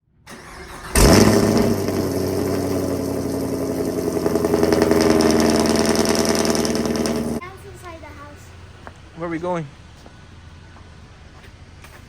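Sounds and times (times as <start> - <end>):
car engine starting and idling: 0.3 - 8.8.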